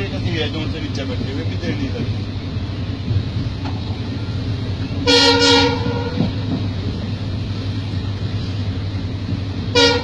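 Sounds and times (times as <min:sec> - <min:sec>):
train rumbling inside coach: 0:00.0 - 0:10.0
train horn: 0:05.0 - 0:06.3, 0:09.7 - 0:10.0.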